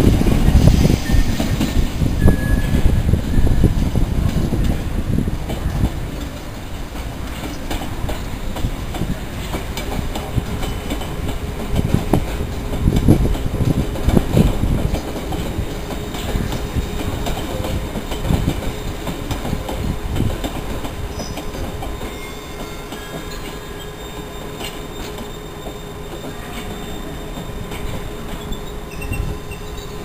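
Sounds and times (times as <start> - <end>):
train wheels clattering: 0.0 - 30.0
faint high wheel squeal: 2.2 - 3.8, 21.1 - 30.0.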